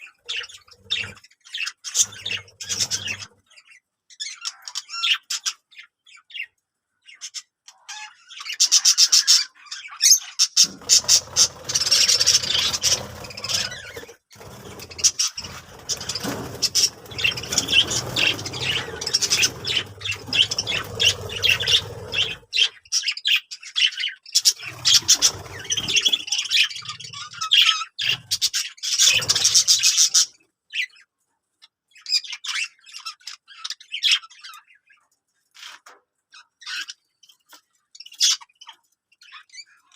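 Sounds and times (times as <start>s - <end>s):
budgerigars chirping: 0.0s - 6.5s, 7.1s - 31.0s.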